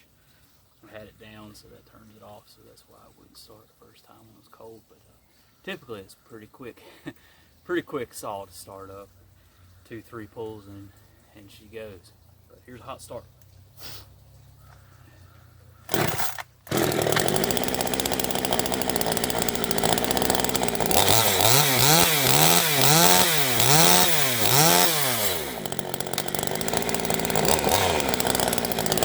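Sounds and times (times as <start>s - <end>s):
chainsaw idling and revving: 15.8s - 29.0s
starter cord pull: 15.9s - 29.0s.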